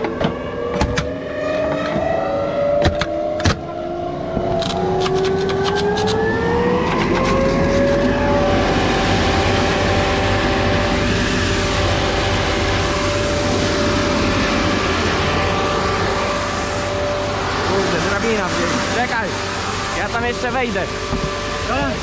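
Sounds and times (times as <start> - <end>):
sharp clicks and knocks: 4.4 - 6.2
grain blower whine: 4.8 - 22.0
loud rush of air: 7.9 - 22.0.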